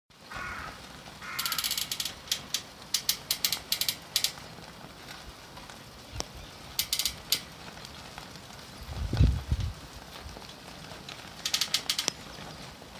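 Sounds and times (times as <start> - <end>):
pole creaking: 1.2 - 4.4, 6.8 - 7.4, 11.4 - 12.2.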